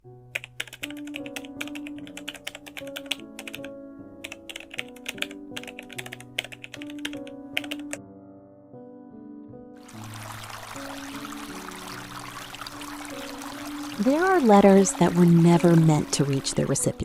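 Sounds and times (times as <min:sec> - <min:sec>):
soft background music: 0:00.0 - 0:17.0
keyboard typing clicks: 0:00.3 - 0:08.0.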